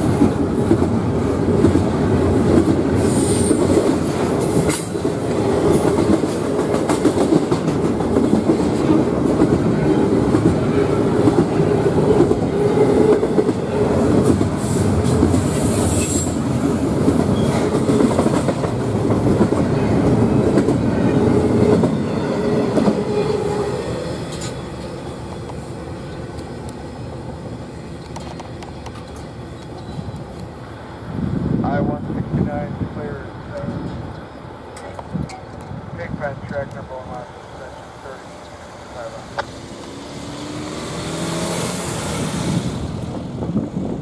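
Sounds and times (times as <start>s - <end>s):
freight train wheels on rails: 0.0s - 44.0s
high wheel squeal: 15.5s - 16.4s.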